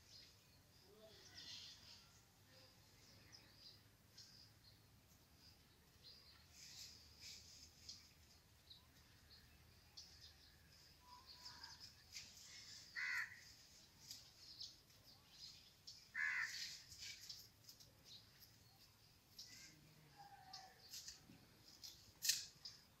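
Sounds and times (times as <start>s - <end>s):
small birds chirping: 0.0s - 23.0s
loud harsh bird calls: 12.7s - 13.6s, 16.1s - 17.3s.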